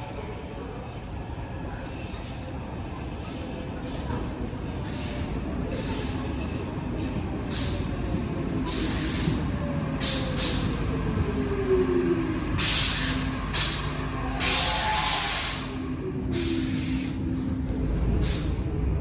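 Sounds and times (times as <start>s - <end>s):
train rumbling on rails: 0.0s - 19.0s
train motor whine: 11.8s - 19.0s.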